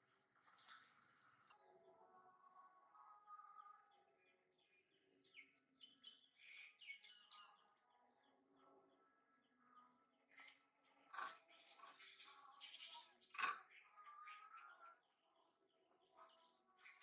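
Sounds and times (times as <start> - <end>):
faint high-pitched bird chirps: 1.5 - 17.0.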